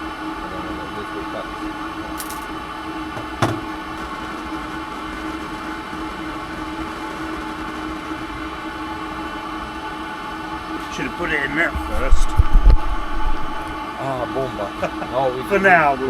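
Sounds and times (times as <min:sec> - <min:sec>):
small engine running: 0:03.2 - 0:14.6.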